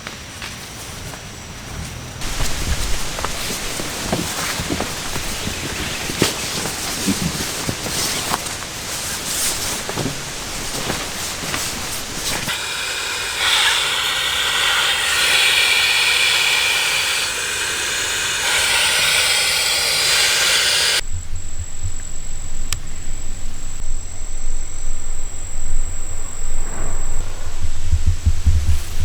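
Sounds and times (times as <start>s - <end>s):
rain hissing: 2.2s - 29.0s
low throbbing hum: 21.0s - 29.0s.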